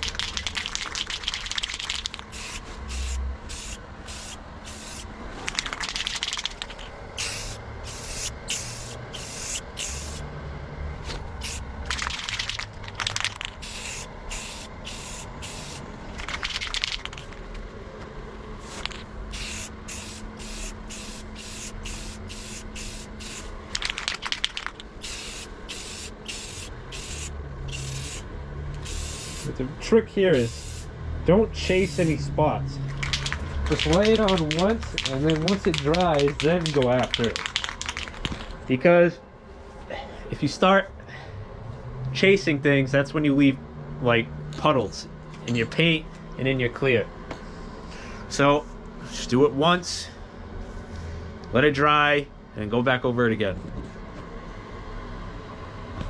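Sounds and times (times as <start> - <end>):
aerosol can spraying: 0.2 - 10.3, 11.4 - 15.8, 18.6 - 29.6, 30.4 - 30.9, 33.0 - 38.1.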